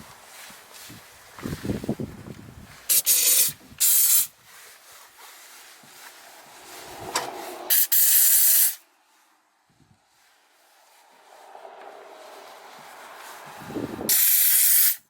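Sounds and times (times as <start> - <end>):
rubbing noise: 2.8 - 8.7
spraying hiss: 2.9 - 4.3, 6.2 - 8.8, 10.8 - 15.0.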